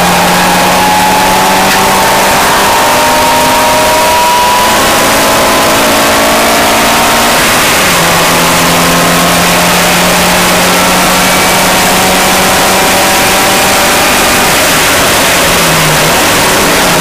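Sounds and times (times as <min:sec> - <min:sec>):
car engine running hard: 0:00.0 - 0:17.0
road and wind noise: 0:00.0 - 0:17.0.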